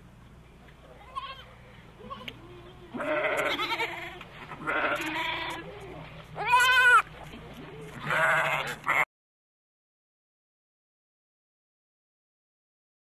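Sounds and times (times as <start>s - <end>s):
farm animal bleating: 0.9s - 7.1s, 7.8s - 9.1s.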